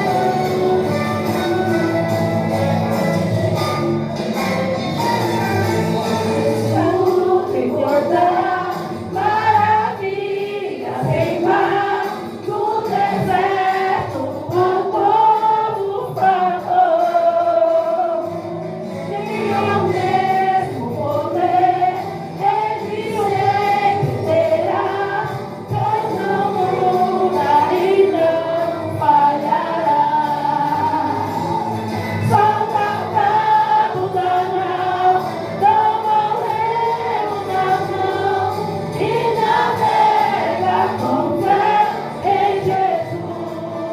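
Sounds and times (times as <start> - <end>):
instrumental backing: 0.0 - 13.7
choir singing gospel: 0.0 - 43.9.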